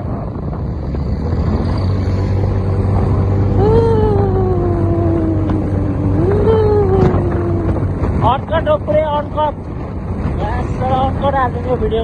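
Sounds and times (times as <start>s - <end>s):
motorcycle engine hum: 0.0s - 12.0s
wind noise: 0.0s - 12.0s
long pitched tone: 3.5s - 8.0s.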